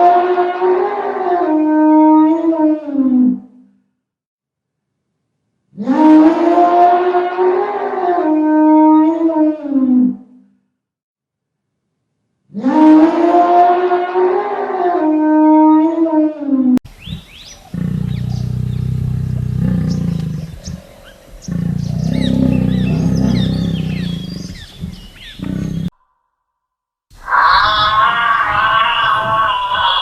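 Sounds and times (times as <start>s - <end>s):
wavering animal call: 12.6s - 25.9s, 27.2s - 30.0s
small birds chirping: 16.9s - 25.9s.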